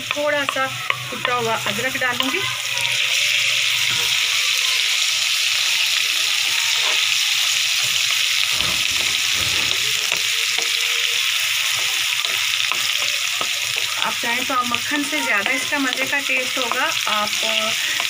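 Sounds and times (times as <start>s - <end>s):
onions sizzling in a pan: 0.0s - 18.0s
wooden spoon stirring: 6.7s - 18.0s.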